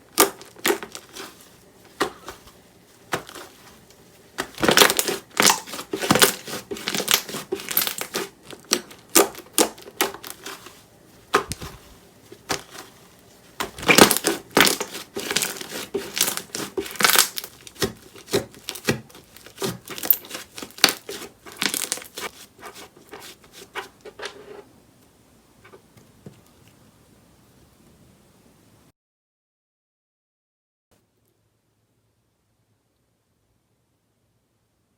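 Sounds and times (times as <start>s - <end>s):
slime crackling and popping: 0.1s - 1.3s, 4.4s - 10.6s, 13.6s - 22.3s.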